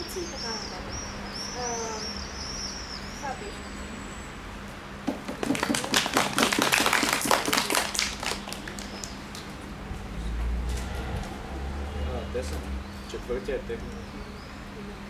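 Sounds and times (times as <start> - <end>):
audience clapping: 5.1 - 9.6.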